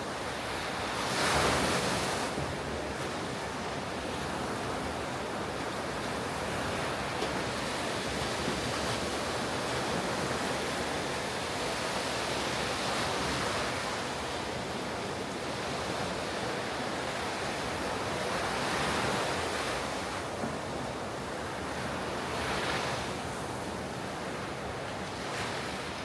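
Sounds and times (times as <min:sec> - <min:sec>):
ocean surf breaking on beach: 0:00.0 - 0:26.0.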